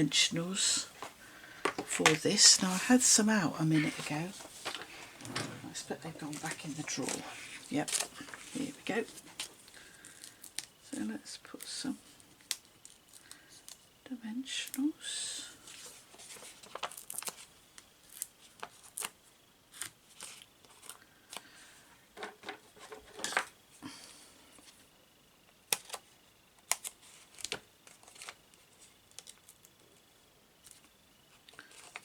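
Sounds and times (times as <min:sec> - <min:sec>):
paper rustling: 0:03.8 - 0:10.7, 0:15.6 - 0:19.1, 0:31.5 - 0:32.0.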